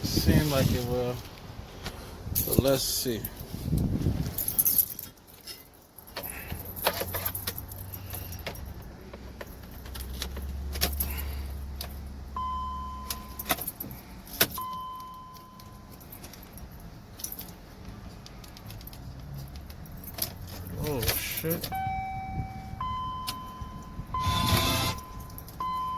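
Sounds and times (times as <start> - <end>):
car keys jangling: 2.2 - 25.9
low steady hum: 10.9 - 17.8, 21.6 - 25.9
car electronic beeps: 12.4 - 13.4, 14.6 - 16.0, 21.7 - 25.9.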